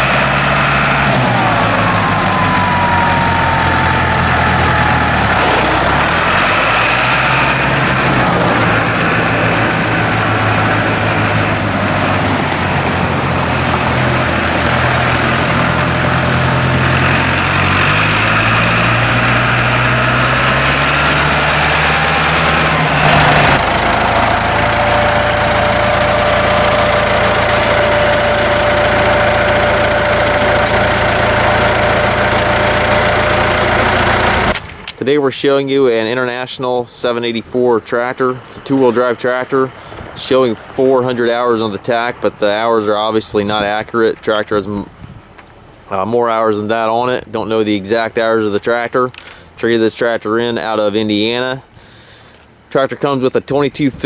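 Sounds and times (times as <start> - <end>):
thin steady whine: 0.0 - 16.9, 20.3 - 34.7
tractor diesel engine running: 0.0 - 52.8.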